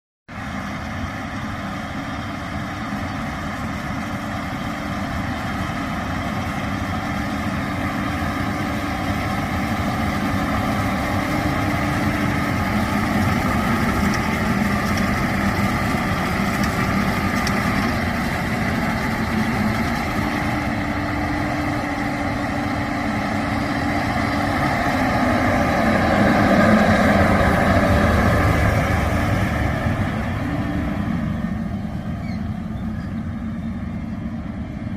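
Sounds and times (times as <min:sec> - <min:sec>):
tractor diesel engine running: 0:00.3 - 0:34.9.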